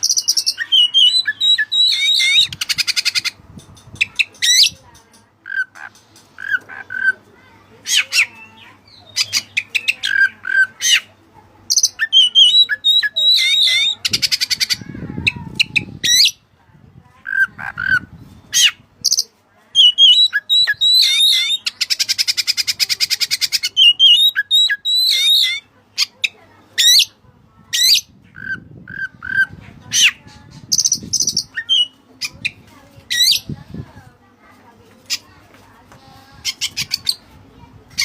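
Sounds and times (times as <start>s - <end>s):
bird singing whistles and squawks: 0.0s - 4.8s, 11.7s - 14.9s, 19.8s - 26.1s
bird rattling trill: 0.0s - 6.8s.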